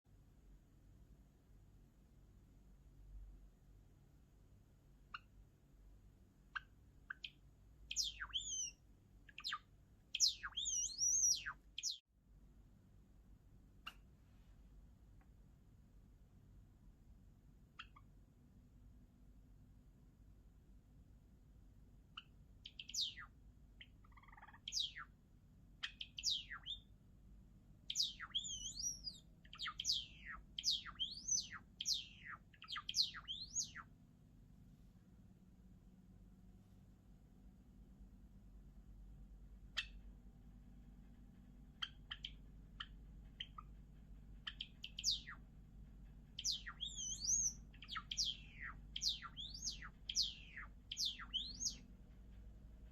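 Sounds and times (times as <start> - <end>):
low bird warble: 6.5 - 12.0, 22.2 - 25.2, 25.8 - 26.9, 27.8 - 33.9, 39.7 - 52.9
sparrow singing: 6.5 - 12.0, 17.8 - 18.1, 22.2 - 25.1, 25.8 - 26.9, 27.8 - 33.9, 39.7 - 40.0, 41.4 - 51.9.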